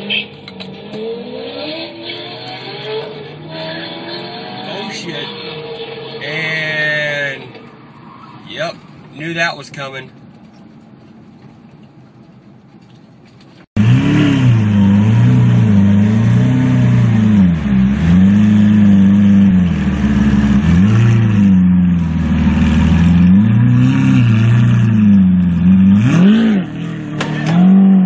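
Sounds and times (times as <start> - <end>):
car engine revving: 0.0 - 7.6, 13.8 - 28.0
sharp crack: 27.2 - 27.6.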